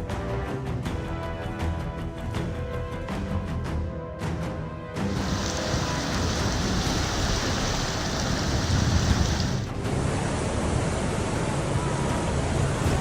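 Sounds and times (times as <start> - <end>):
rushing floodwater: 5.0 - 11.2.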